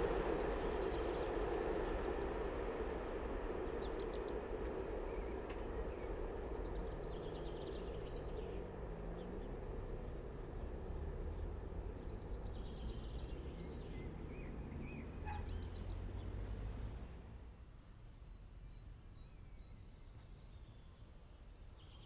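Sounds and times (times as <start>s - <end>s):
freight train rumble: 0.0s - 17.4s.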